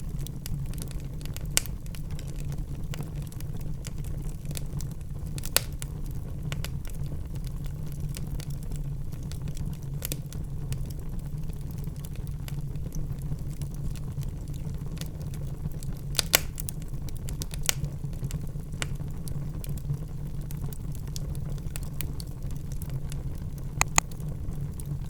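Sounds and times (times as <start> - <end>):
low rumble of flames: 0.0 - 25.0
wood fire crackling and snapping: 0.0 - 25.0.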